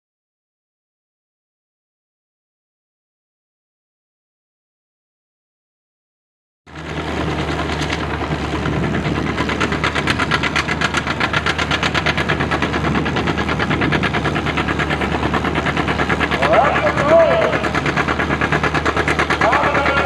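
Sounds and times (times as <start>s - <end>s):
tractor engine running: 6.7s - 20.0s.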